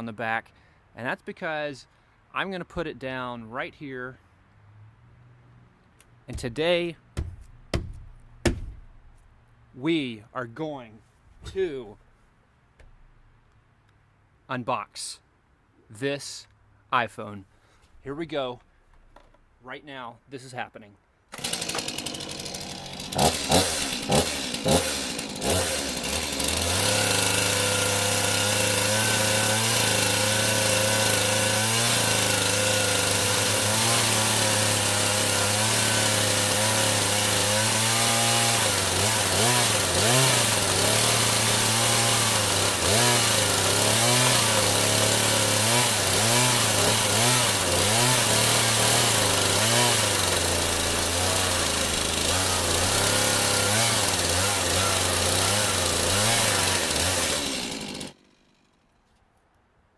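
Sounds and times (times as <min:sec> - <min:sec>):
chainsaw revving: 0:06.3 - 0:09.3, 0:21.3 - 0:58.6
chainsaw cutting cardboard: 0:06.3 - 0:09.5, 0:11.4 - 0:12.2, 0:12.8 - 0:13.4, 0:21.3 - 0:58.4.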